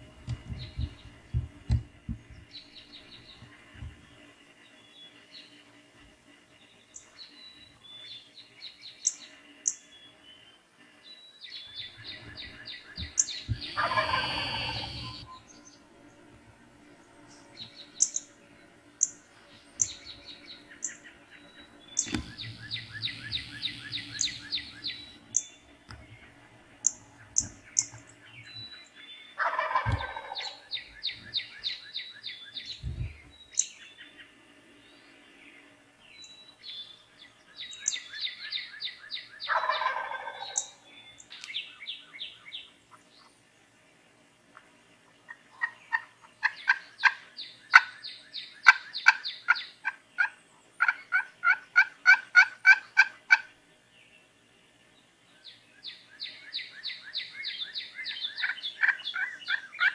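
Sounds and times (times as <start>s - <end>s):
songbirds trilling and chirping: 0.0s - 59.9s
turkey gobbling: 13.0s - 15.3s, 29.4s - 30.7s, 39.5s - 40.8s, 45.3s - 48.0s, 48.6s - 53.5s, 58.3s - 59.9s.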